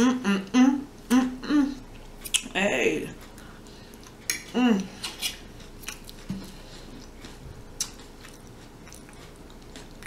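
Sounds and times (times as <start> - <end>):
chewing with mouth closed: 3.2 - 10.0.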